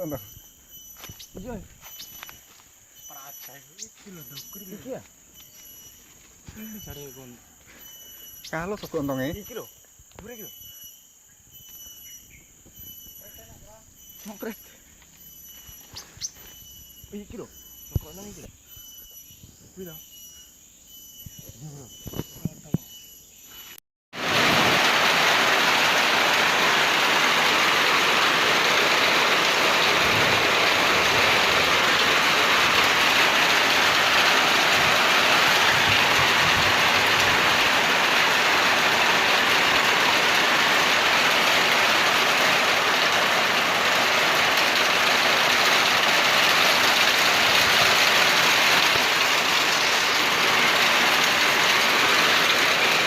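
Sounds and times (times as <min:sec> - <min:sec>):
heavy rain falling: 0:24.2 - 0:53.0.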